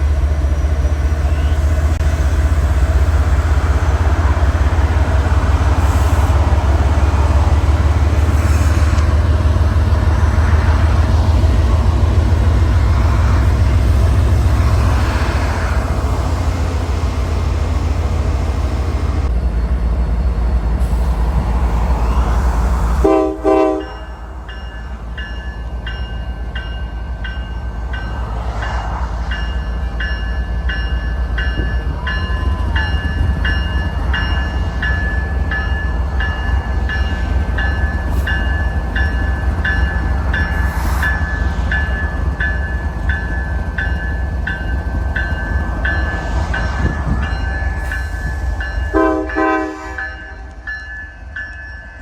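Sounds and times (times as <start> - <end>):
railroad crossing bell ringing: 0.0 - 8.2, 23.0 - 52.0.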